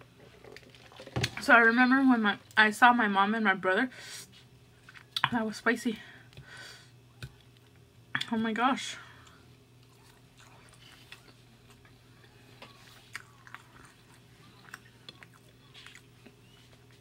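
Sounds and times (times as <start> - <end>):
steady low hum: 0.0 - 17.0
faint closed-mouth chewing: 9.2 - 17.0.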